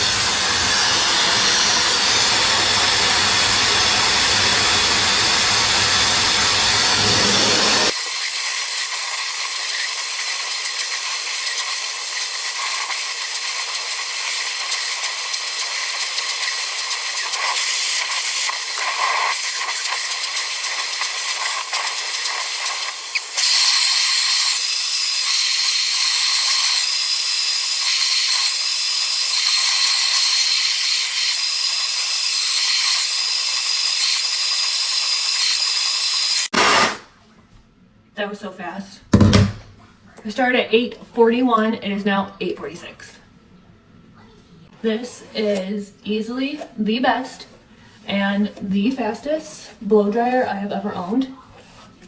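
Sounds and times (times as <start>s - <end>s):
hair dryer blowing: 0.0s - 8.0s, 22.2s - 37.1s.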